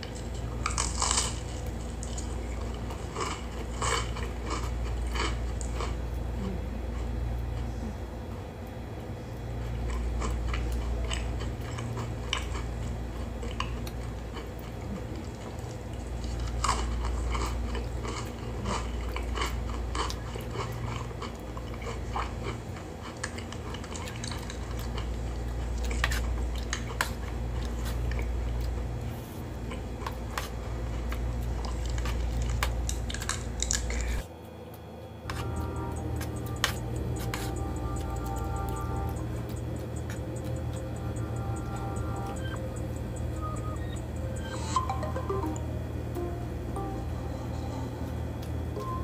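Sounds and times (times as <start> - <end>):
steady low hum: 0.0 - 49.0
wet chewing and mouth clicks: 9.6 - 29.0, 29.6 - 34.3, 35.3 - 43.3.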